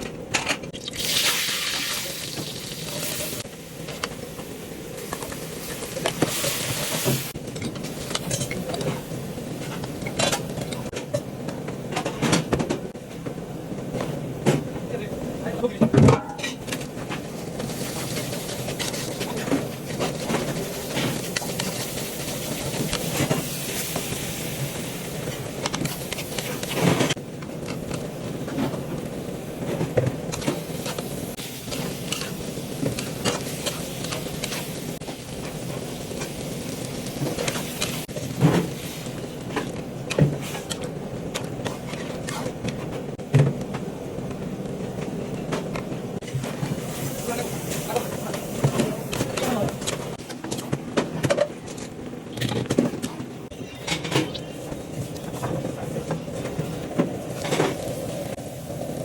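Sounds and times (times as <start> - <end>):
food sizzling in a pot: 0.8 - 10.9, 17.3 - 27.1, 30.3 - 39.6, 46.2 - 49.8, 54.0 - 59.0.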